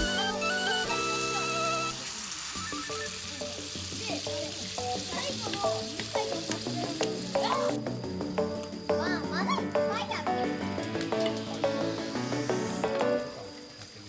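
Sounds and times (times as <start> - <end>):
faint children's voices: 0.0 - 7.8, 8.8 - 11.8
background music: 0.0 - 14.0
food sizzling: 0.0 - 14.0.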